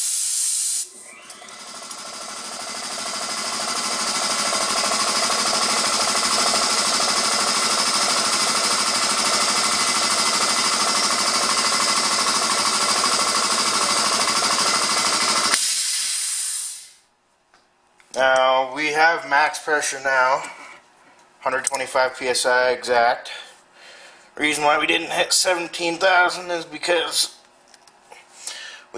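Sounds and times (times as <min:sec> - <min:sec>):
short air hiss: 0:00.0 - 0:01.0, 0:15.5 - 0:17.1
air compressor running: 0:00.0 - 0:17.0.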